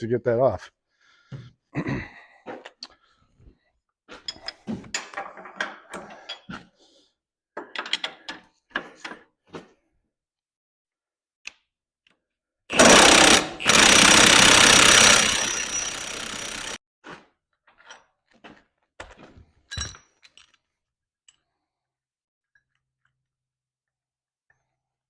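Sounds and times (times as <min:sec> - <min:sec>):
impact wrench hammering: 0:12.7 - 0:16.8.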